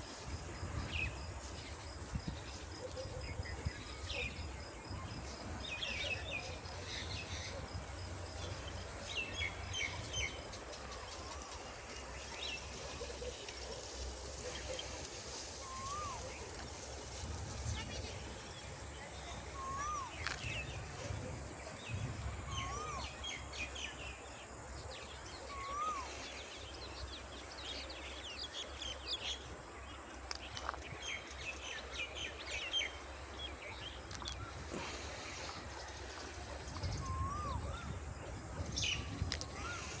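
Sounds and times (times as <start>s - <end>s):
birds chirping: 8.4s - 40.0s.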